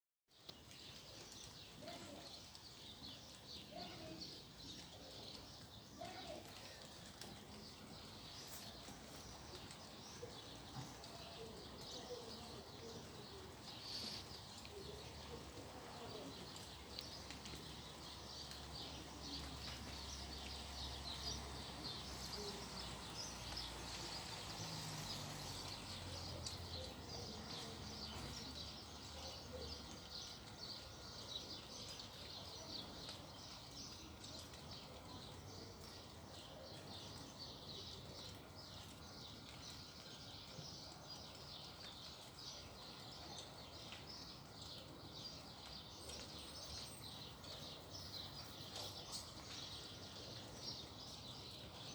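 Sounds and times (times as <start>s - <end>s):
small birds chirping: 0.3s - 51.9s.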